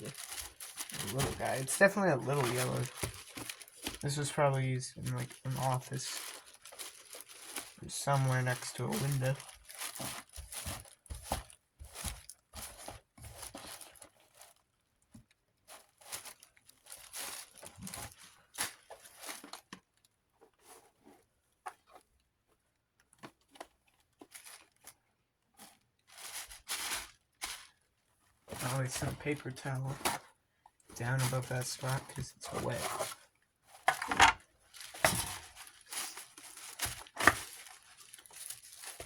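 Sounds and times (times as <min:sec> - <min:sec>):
paper towel rubbing and crinkling: 0:00.0 - 0:11.4, 0:28.5 - 0:30.2, 0:31.0 - 0:33.2, 0:34.7 - 0:39.0.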